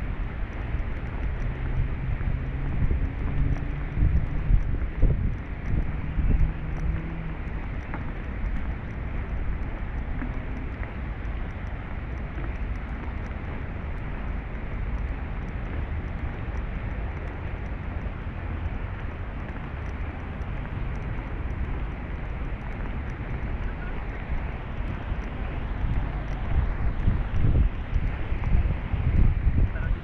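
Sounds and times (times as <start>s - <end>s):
low outdoor rumble: 0.0s - 30.0s.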